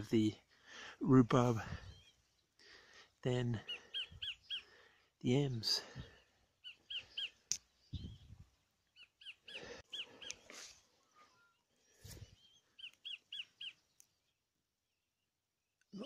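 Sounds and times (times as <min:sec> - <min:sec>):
small bird chirping: 0:03.6 - 0:04.7, 0:06.2 - 0:14.5.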